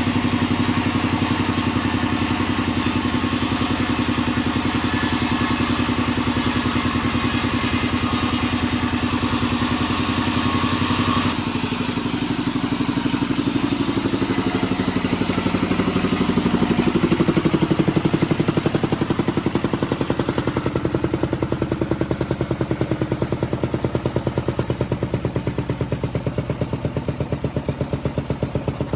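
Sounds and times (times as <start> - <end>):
harsh saw cutting noise: 0.0 - 21.4
band saw machinery pulsing: 0.0 - 28.9.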